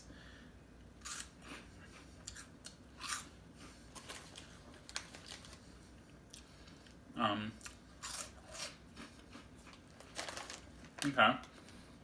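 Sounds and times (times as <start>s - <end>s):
person chewing crunchy snack: 7.6s - 10.4s.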